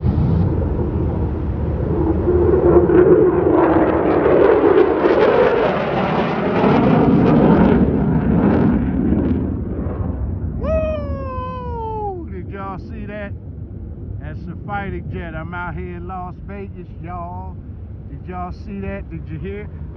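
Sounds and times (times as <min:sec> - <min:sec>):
jet aircraft roaring overhead: 0:00.0 - 0:19.9
man calling out: 0:10.6 - 0:13.4, 0:14.2 - 0:19.8.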